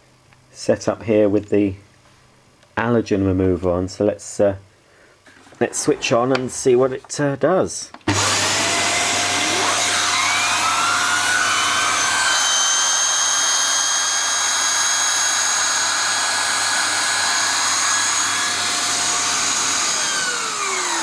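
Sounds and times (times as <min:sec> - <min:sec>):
vacuum cleaner running: 0:08.1 - 0:21.0
vacuum motor winding down: 0:08.1 - 0:21.0.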